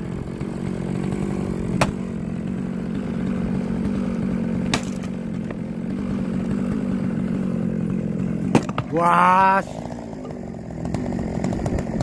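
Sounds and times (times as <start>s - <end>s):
small engine running: 0.0s - 12.0s
sharp cracks: 1.1s - 2.1s, 4.6s - 6.8s.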